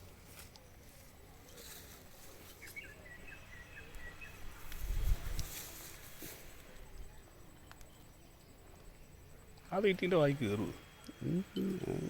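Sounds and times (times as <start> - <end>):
riverside ambience: 0.0 - 12.0
bird chirping: 2.5 - 4.7.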